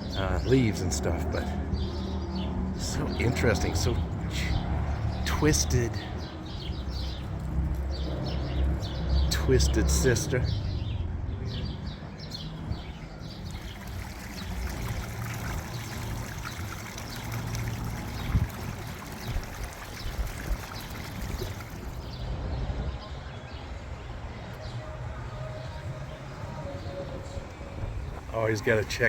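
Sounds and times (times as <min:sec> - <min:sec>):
wind rumbling on microphone: 0:10.5 - 0:29.0
waterfall splashing into pond: 0:13.5 - 0:22.0.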